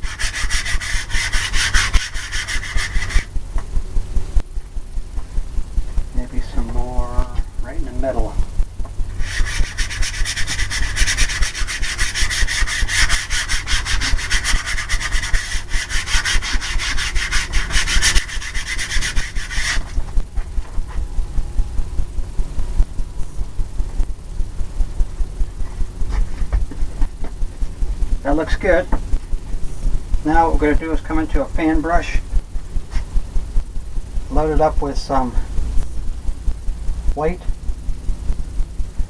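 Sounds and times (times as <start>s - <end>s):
paintbrush scrubbing canvas: 0.0s - 3.3s, 9.2s - 20.1s
low steady hum: 0.0s - 39.0s.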